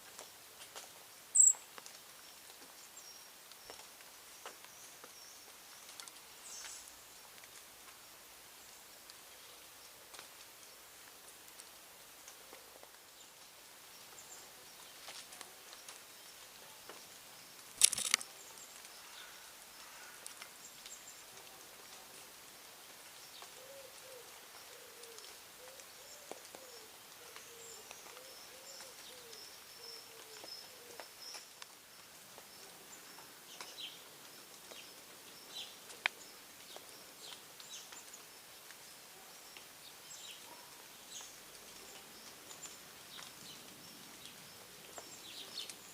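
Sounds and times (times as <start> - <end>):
birds chirping: 1.4 - 1.6
small click: 17.8 - 18.3.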